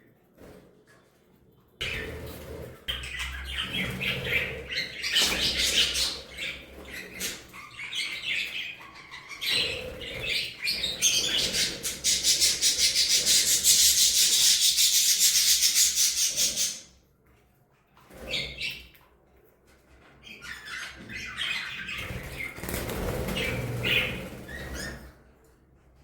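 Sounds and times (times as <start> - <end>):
budgerigars chirping: 2.9 - 16.9, 20.4 - 25.0
fast scratching rasp: 9.4 - 16.8.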